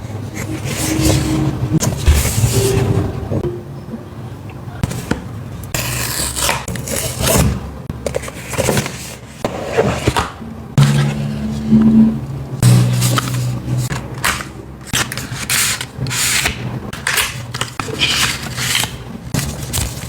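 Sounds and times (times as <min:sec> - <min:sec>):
low steady hum: 0:00.0 - 0:06.5, 0:10.4 - 0:15.5
packaging scraping and rustling: 0:12.9 - 0:20.0.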